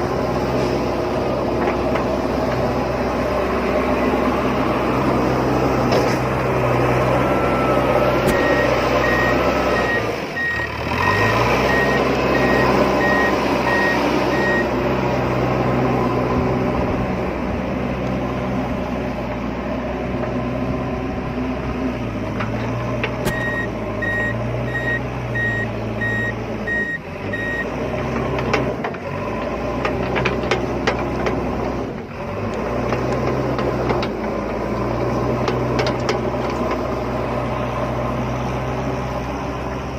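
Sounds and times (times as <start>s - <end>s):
rapid warning beeps: 7.4s - 14.7s, 23.3s - 27.6s.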